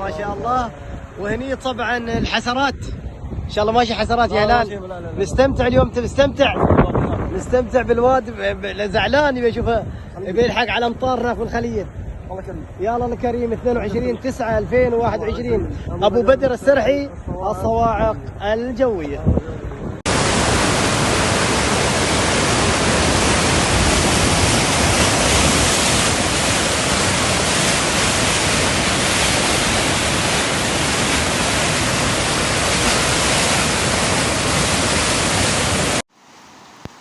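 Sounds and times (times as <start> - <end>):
floodwater rushing: 20.1 - 37.0.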